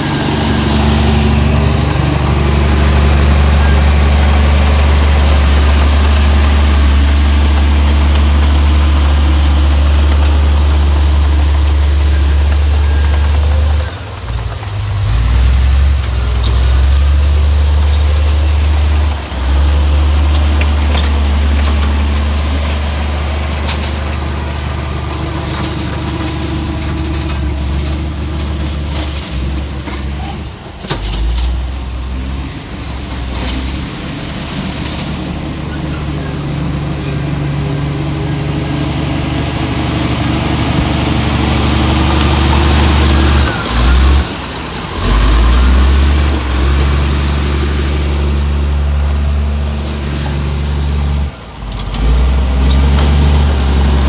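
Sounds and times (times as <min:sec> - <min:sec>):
heavy diesel machine engine drone: 0:00.0 - 0:54.0
metal clanks and knocks: 0:19.3 - 0:46.6.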